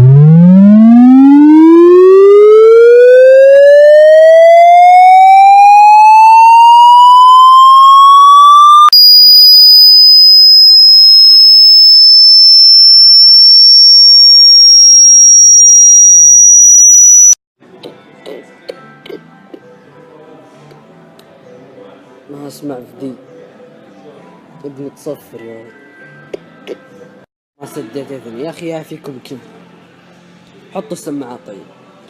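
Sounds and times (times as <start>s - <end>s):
piercing high steady tone: 0.0s - 17.4s
synthesized test tone sweeping upward: 0.0s - 17.4s.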